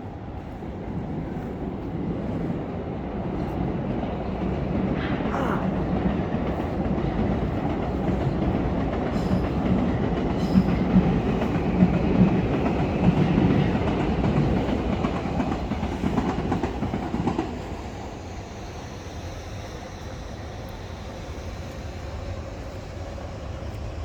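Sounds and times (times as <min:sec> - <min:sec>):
train wheels clattering over rails: 0:03.2 - 0:18.2.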